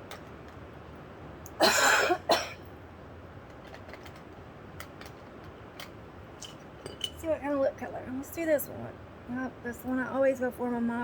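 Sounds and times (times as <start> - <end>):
woman coughing: 1.6 - 2.6.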